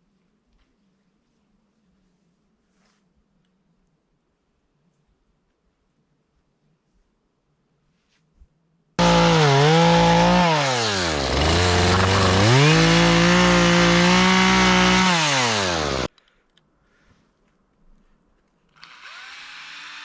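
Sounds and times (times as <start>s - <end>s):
power tool motor running: 9.0s - 16.1s, 18.8s - 20.0s.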